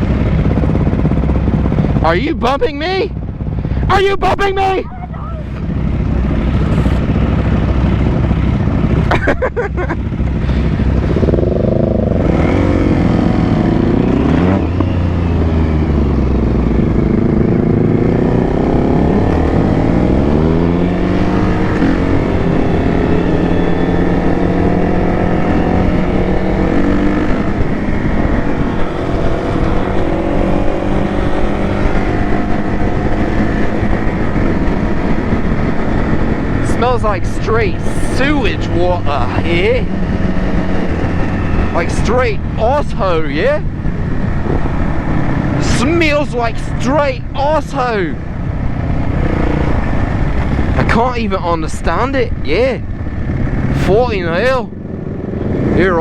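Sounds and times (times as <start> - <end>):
motorcycle engine revving: 0.0 - 3.9, 5.0 - 56.0.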